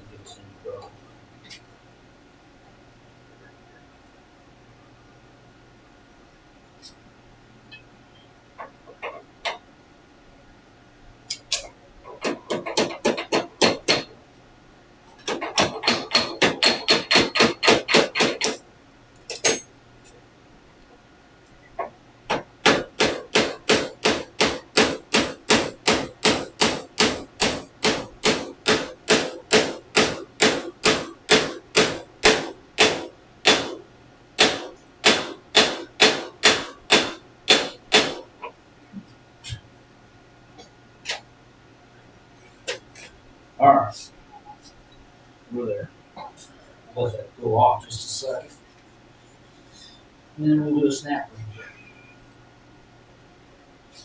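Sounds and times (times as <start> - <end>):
hammer striking metal gear: 15.5 - 18.6, 19.2 - 19.6, 22.7 - 33.8, 34.4 - 38.2.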